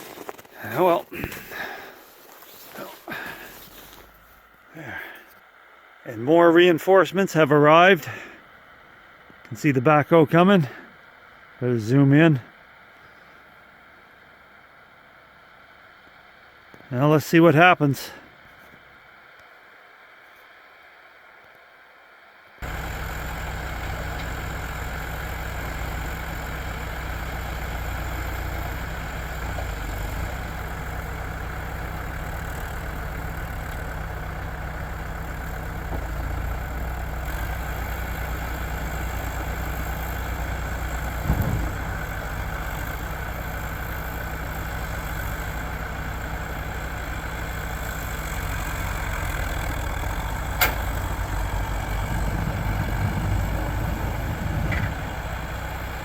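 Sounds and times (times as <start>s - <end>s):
heavy vehicle engine idling: 0.1s - 56.0s
short thump: 41.1s - 41.9s.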